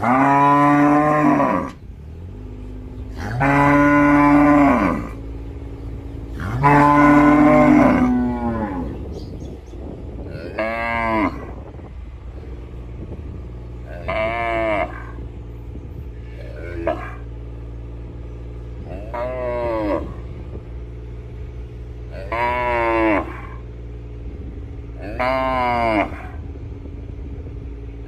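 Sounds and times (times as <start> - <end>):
cattle mooing: 0.0 - 1.8, 3.1 - 5.5, 6.3 - 9.1, 10.3 - 11.6, 13.8 - 15.3, 16.1 - 17.3, 18.8 - 20.4, 22.0 - 23.7, 25.0 - 26.5.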